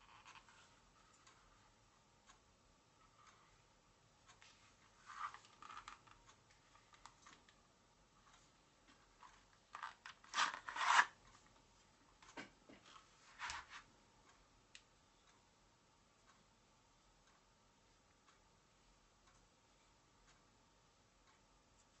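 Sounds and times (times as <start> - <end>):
metal pistol handling rubs and scrapes: 5.0 - 6.0, 9.8 - 11.2, 12.9 - 13.8.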